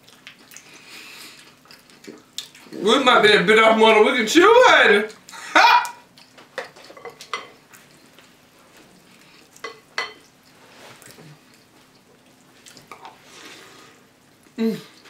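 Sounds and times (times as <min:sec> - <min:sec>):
dry cereal being chewed: 0:00.0 - 0:02.8, 0:06.1 - 0:15.0.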